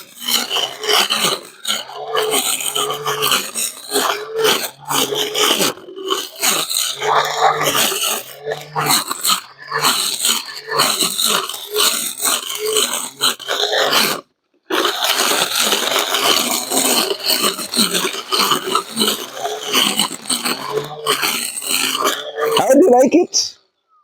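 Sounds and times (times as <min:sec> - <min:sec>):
brush cutter cutting grass: 0:00.0 - 0:23.2.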